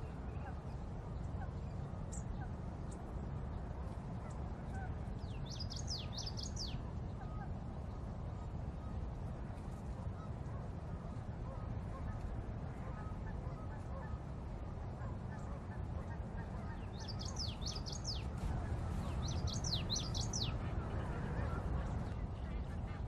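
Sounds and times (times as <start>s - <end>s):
low outdoor rumble: 0.0s - 23.0s
faint bird chirps: 16.7s - 20.8s.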